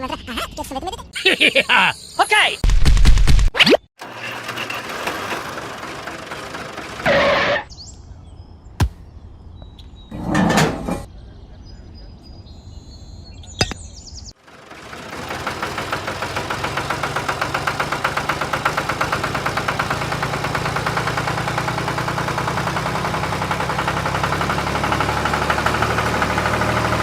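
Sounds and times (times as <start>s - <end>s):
engine chugging: 4.0s - 7.6s, 14.4s - 27.0s.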